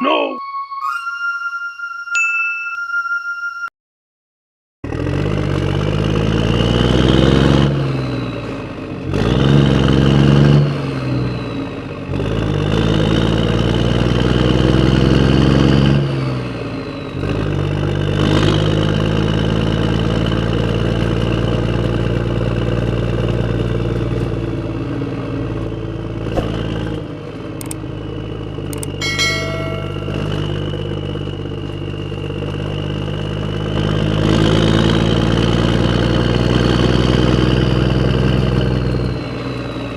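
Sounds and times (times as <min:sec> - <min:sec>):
short ringing tone: 0:00.0 - 0:03.7, 0:29.0 - 0:31.3
engine revving: 0:04.8 - 0:39.9.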